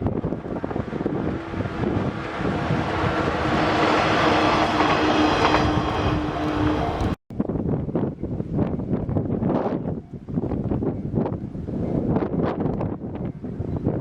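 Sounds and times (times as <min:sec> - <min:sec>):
electric train running past: 0:00.0 - 0:07.2.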